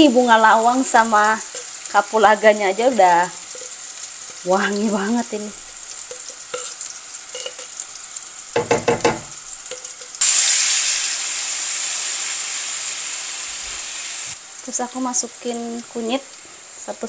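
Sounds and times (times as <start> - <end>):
paste sizzling in a wok: 0.0 - 17.0
spatula knocking on blender jar: 8.6 - 9.3.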